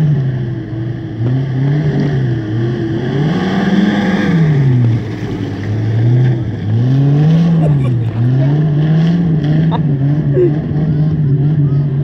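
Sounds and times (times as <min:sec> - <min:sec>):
car engine revving: 0:00.0 - 0:12.0
wheels churning through mud: 0:01.3 - 0:12.0.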